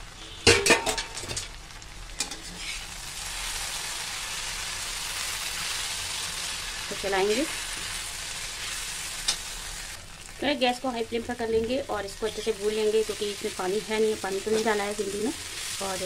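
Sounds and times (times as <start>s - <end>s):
okra sizzling in oil: 0.0s - 16.0s
steel lid clattering: 0.4s - 1.5s.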